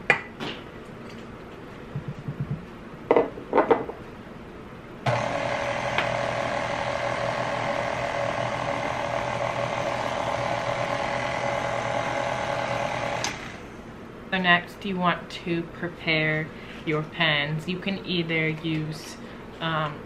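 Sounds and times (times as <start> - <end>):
knocks: 2.0 - 3.9
stand mixer motor hum: 5.1 - 13.7.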